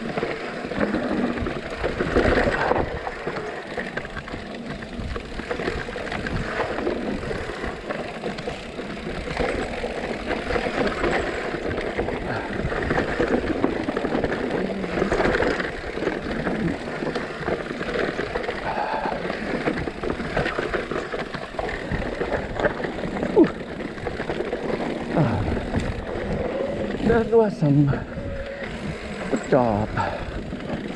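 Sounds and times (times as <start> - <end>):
bike rattling: 0.0 - 30.9
tyres rushing over dirt: 0.0 - 30.9.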